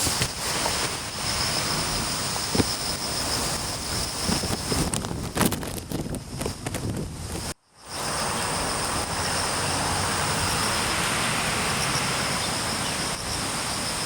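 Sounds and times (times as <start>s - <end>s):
insects chirping: 0.0s - 5.7s, 6.3s - 14.0s
storm wind rushing: 0.0s - 14.0s.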